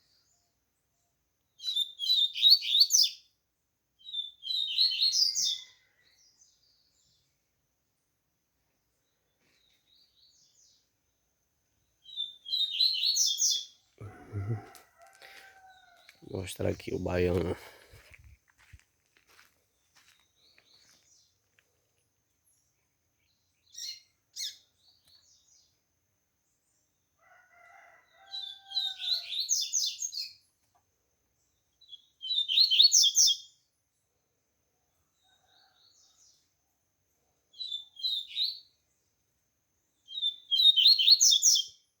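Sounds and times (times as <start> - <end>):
seedeater bird singing: 1.6 - 3.2, 4.0 - 5.7, 12.0 - 13.8, 31.8 - 33.5, 40.0 - 41.8
distant rooster crowing: 14.0 - 17.7, 27.2 - 29.6, 35.1 - 36.4.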